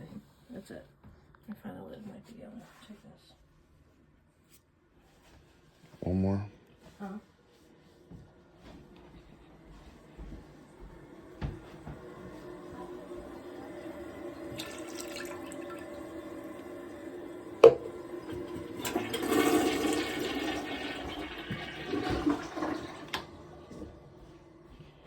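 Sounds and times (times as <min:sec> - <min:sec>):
water pouring and splashing: 0:14.1 - 0:23.4.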